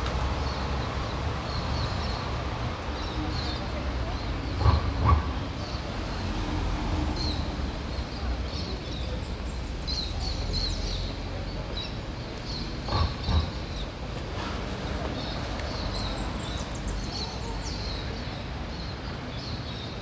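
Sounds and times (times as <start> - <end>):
city street noise rumble: 0.0 - 20.0
small birds chirping: 0.0 - 20.0.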